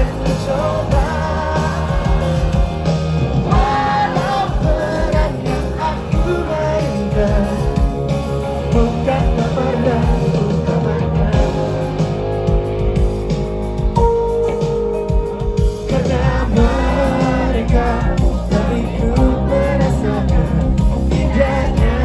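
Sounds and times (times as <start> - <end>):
person singing: 0.0 - 12.1, 15.7 - 22.0
live rock band: 0.0 - 22.0.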